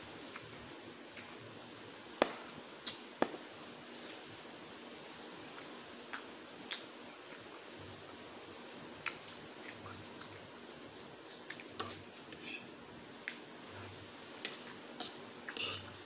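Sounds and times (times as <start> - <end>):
steady hiss: 0.0 - 16.0
chewing noises: 5.5 - 7.8, 9.0 - 16.0.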